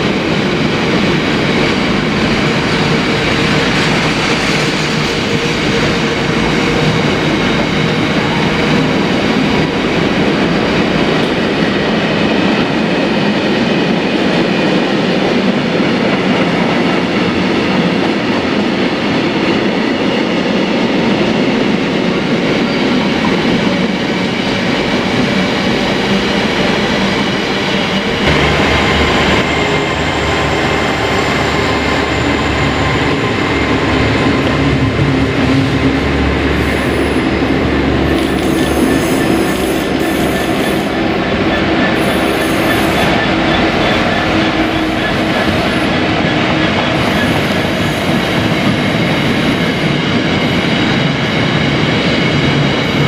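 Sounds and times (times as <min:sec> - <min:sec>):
train wheels on rails: 0:00.0 - 0:53.0.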